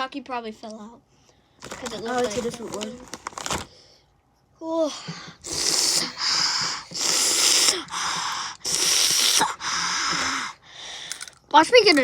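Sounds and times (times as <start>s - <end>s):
person panting hard: 5.1s - 11.3s.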